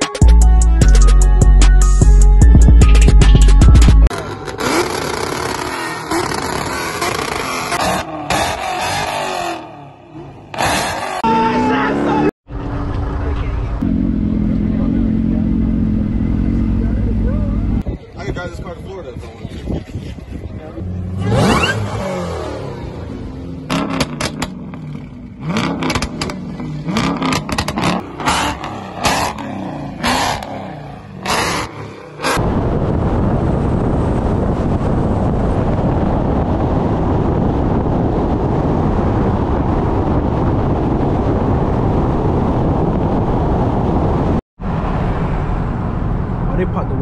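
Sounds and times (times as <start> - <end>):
car engines revving: 4.0 - 17.8, 20.1 - 32.7.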